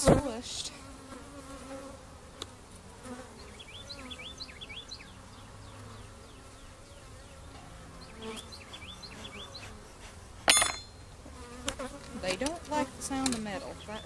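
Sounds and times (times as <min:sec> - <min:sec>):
bees buzzing around a hive: 0:00.0 - 0:14.0.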